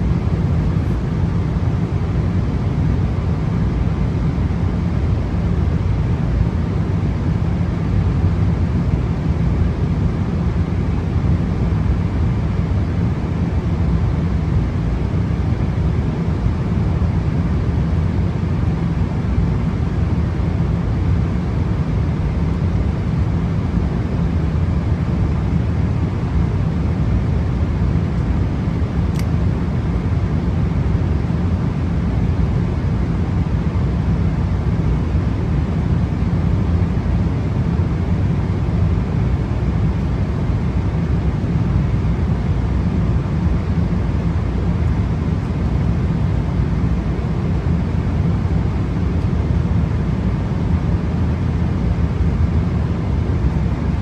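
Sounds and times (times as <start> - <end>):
airliner cabin engine rush: 0.0 - 54.0
faint click: 29.1 - 29.4.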